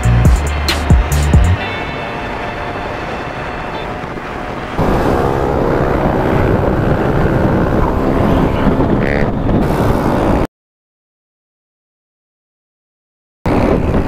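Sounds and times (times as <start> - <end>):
motorcycle engine running: 0.0 - 10.4
wind noise: 0.0 - 10.5, 13.5 - 14.0.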